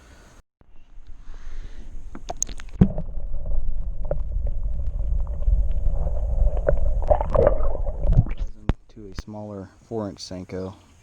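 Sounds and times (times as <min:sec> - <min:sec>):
low water rumble: 0:00.6 - 0:09.3.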